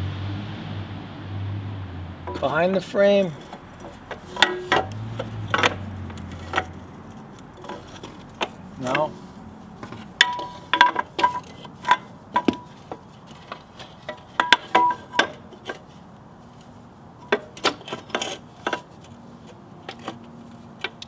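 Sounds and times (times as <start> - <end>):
metal clanking: 2.1 - 16.0.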